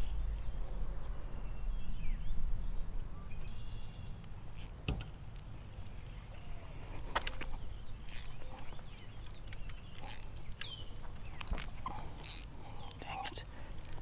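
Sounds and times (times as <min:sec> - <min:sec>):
wind rumbling on microphone: 0:00.0 - 0:04.0.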